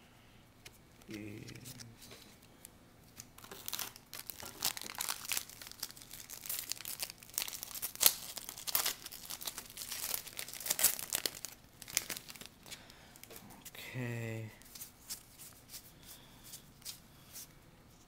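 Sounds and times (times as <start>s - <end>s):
wrapper crinkling and tearing: 3.4s - 13.4s.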